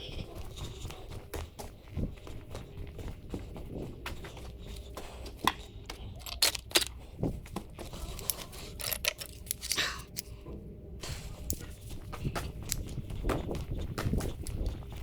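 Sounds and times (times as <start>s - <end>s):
low steady hum: 0.0s - 15.0s
hand tools clinking on metal: 8.2s - 10.3s.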